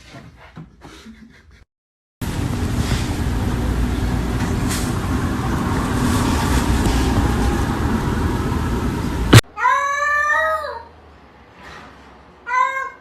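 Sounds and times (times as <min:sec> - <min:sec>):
vehicle rumbling in motion: 0:02.2 - 0:09.4
cat meowing: 0:09.6 - 0:10.9, 0:12.5 - 0:13.0.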